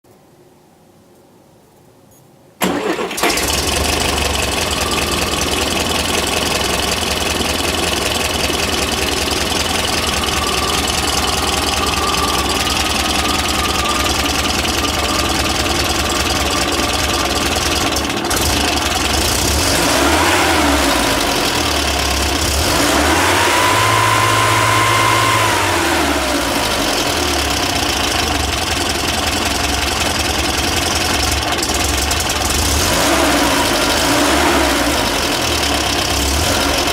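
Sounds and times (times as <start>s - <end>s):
engine revving: 2.6s - 36.9s
engine starting and idling: 2.6s - 36.9s.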